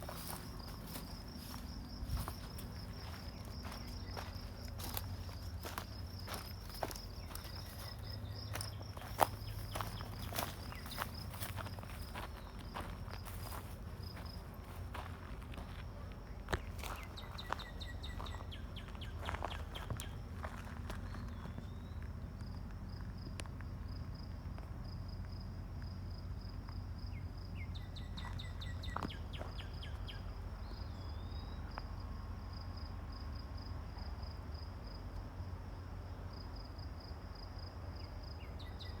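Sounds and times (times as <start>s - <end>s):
insects trilling: 0.0s - 35.1s
bird chirps: 16.9s - 20.2s.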